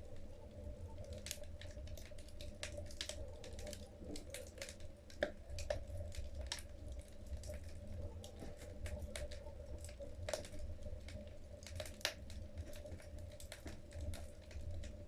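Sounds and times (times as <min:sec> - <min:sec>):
logs crackling in fireplace: 0:00.0 - 0:15.0.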